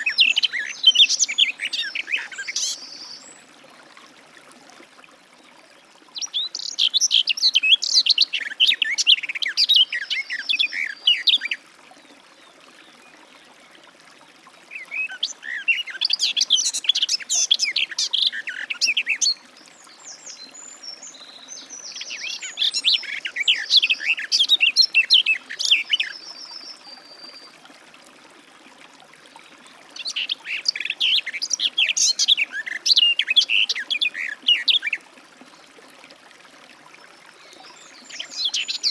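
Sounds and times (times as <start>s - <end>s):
warbler singing: 0.0s - 3.4s, 14.8s - 27.5s, 37.7s - 38.9s.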